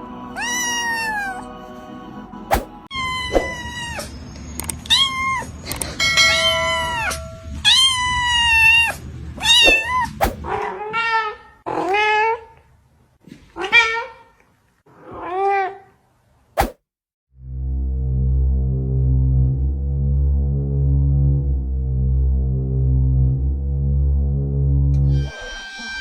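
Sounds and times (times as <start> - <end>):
cat meowing: 0.4 - 1.6, 2.9 - 4.2, 4.8 - 5.6, 6.7 - 12.6, 13.6 - 14.3, 15.0 - 15.9, 25.0 - 26.0
sharp clicks: 4.6 - 4.9.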